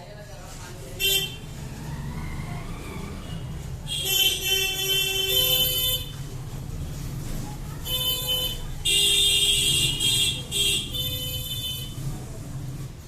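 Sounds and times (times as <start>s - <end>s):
low steady traffic rumble: 0.0s - 13.0s
vehicle horn honking: 1.0s - 1.5s, 3.9s - 6.2s, 7.9s - 12.0s.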